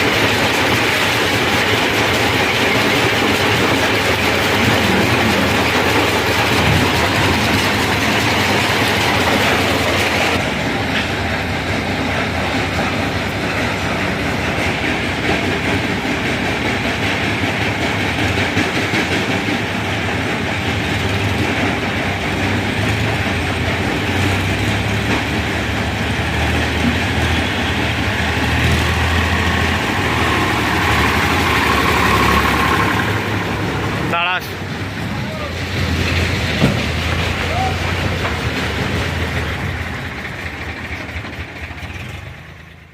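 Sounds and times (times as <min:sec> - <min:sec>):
diesel tractor engine rattling: 0:00.0 - 0:42.9.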